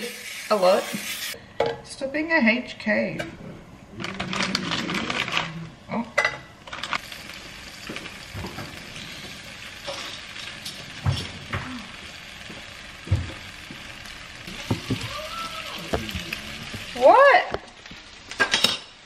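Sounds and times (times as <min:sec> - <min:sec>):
dumplings sizzling in oil: 0:07.0 - 0:19.0.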